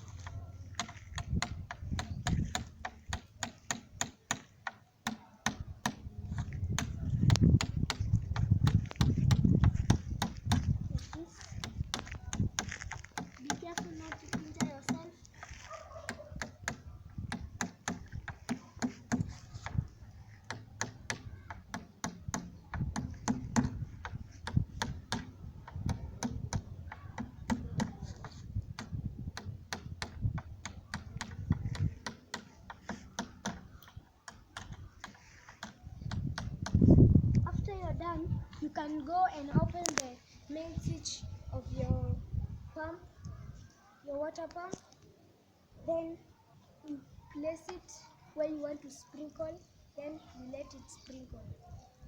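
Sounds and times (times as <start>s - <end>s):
hammer tapping a nail: 0.2s - 10.7s, 11.5s - 15.1s, 16.1s - 36.8s.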